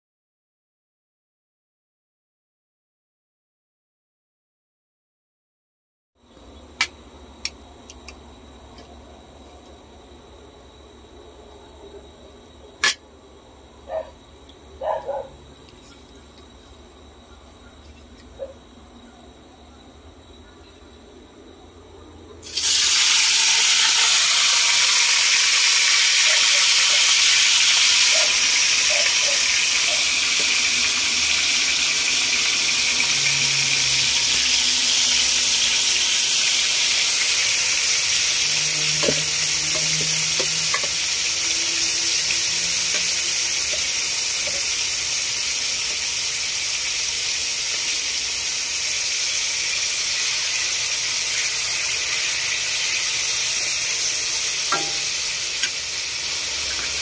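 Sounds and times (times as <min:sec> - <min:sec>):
beef sizzling in a wok: 0:22.4 - 0:57.0.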